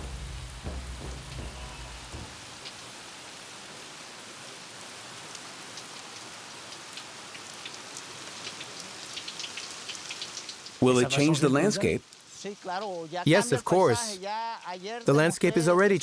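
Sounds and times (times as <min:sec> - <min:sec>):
rain drop impacts: 0:00.0 - 0:03.6, 0:05.3 - 0:13.2
steady rain hiss: 0:00.0 - 0:16.0.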